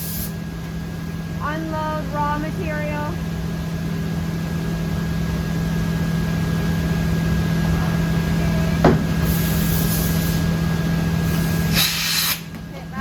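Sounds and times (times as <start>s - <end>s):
hiss of air: 0.0s - 0.4s, 9.1s - 10.6s, 11.2s - 12.5s
low hum of shop machinery: 0.0s - 13.0s.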